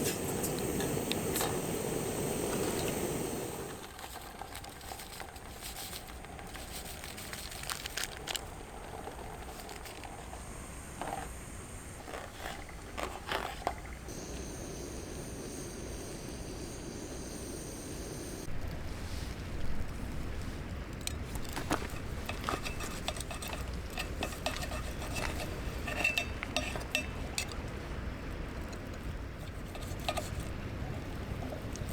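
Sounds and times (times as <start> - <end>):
metal cutlery and cookware clinking: 21.9 - 27.5.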